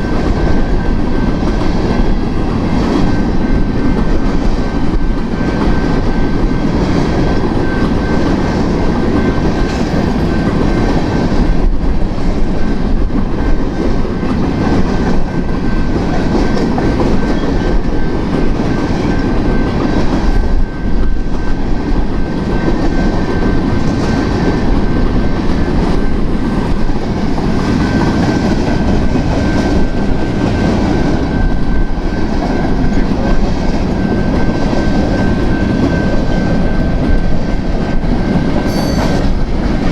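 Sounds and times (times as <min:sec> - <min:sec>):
train wheels clacking over rails: 0:00.0 - 0:39.9
thin high-pitched ring: 0:38.6 - 0:39.4.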